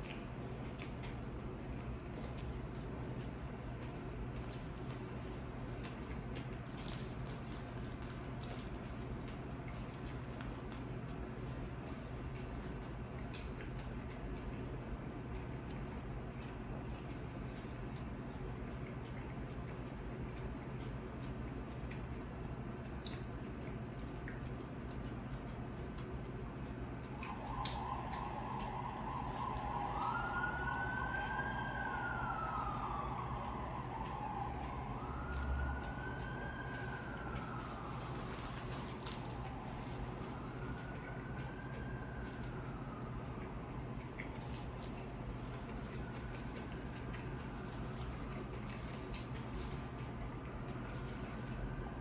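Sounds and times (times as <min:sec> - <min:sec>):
chewing mouth sounds: 0:00.0 - 0:14.7, 0:15.6 - 0:30.2, 0:32.7 - 0:51.6
low steady hum: 0:00.0 - 0:52.0
siren wailing: 0:27.3 - 0:48.6.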